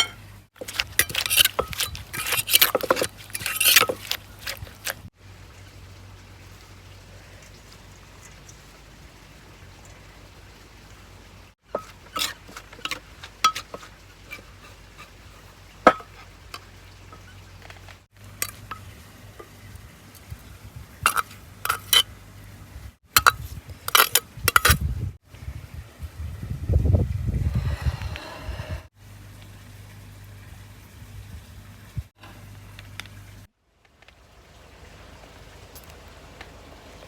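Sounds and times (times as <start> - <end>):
utensils clinking on dishes: 0.0 - 5.0, 11.7 - 17.3, 21.1 - 22.0, 23.2 - 24.8.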